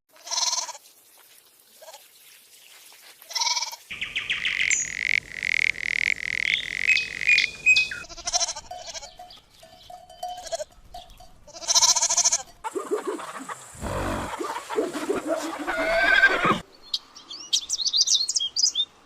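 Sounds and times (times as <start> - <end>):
farm animal bleating: 0.1 - 0.8, 3.2 - 3.9, 7.9 - 9.4, 10.1 - 12.7, 13.8 - 14.4, 15.5 - 16.6.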